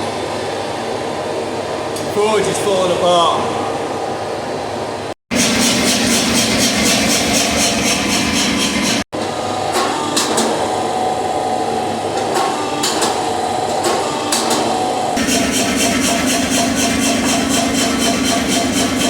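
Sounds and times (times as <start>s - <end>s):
hammer striking hot steel: 13.8s - 19.0s.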